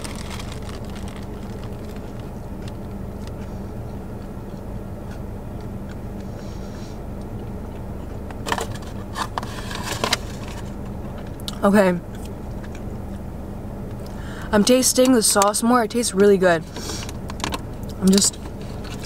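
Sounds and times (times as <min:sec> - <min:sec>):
paper bag crackling: 0:00.0 - 0:02.4
car engine hum: 0:00.0 - 0:19.0.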